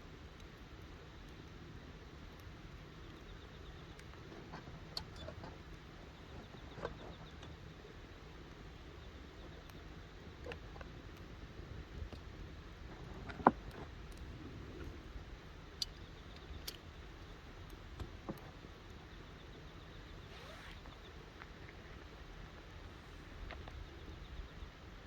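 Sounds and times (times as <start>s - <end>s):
campfire crackling and popping: 7.5s - 19.3s.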